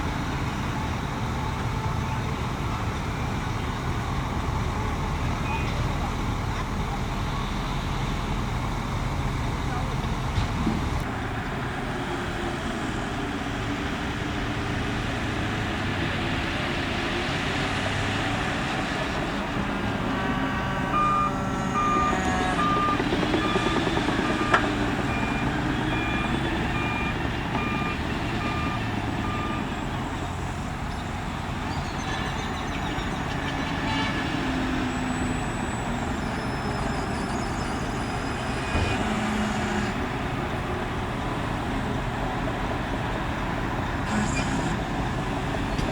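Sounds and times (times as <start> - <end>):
heavy machine engine running: 0.0 - 45.9
reversing alarm beeping: 20.4 - 29.9.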